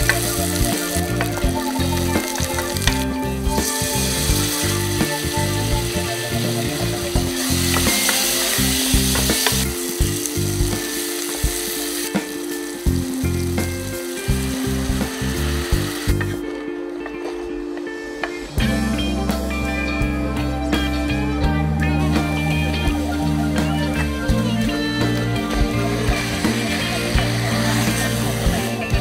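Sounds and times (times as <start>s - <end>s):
onions sizzling in hot oil: 0.0s - 16.4s, 25.9s - 29.0s
background music: 0.0s - 29.0s.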